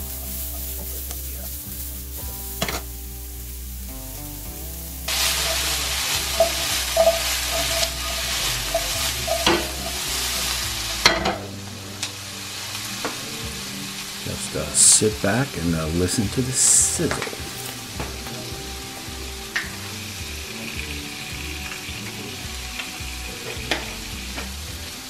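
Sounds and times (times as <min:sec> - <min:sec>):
vegetables sizzling in oil: 0:00.0 - 0:25.0
pan knocking: 0:05.1 - 0:11.6.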